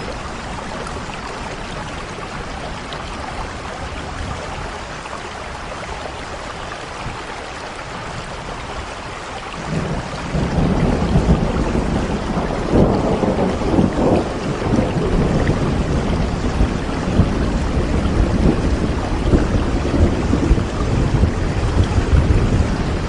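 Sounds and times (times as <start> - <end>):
steady rain: 0.0 - 23.0
rumble of thunder: 9.6 - 23.0.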